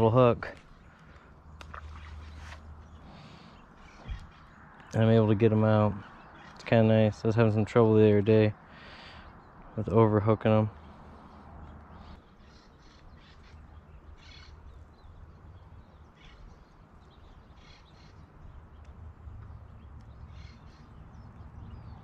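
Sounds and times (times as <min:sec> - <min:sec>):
bird harsh caw-like calls: 0:00.7 - 0:04.9, 0:06.0 - 0:06.6, 0:08.6 - 0:09.6, 0:10.8 - 0:14.7, 0:16.1 - 0:16.6, 0:17.5 - 0:18.3, 0:20.3 - 0:21.2.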